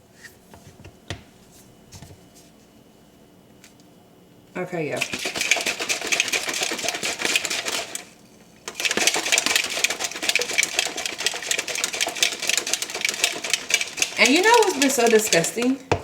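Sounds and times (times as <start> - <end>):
shaker bottle rattling: 5.0 - 15.8.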